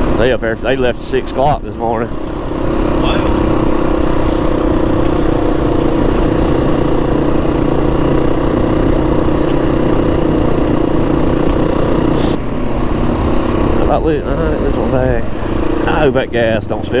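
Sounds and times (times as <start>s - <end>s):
dirt bike engine drone: 0.0s - 17.0s.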